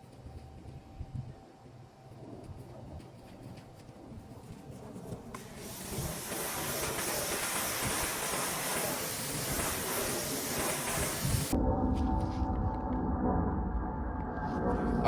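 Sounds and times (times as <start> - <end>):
pressure washer spraying water: 5.4 - 11.6.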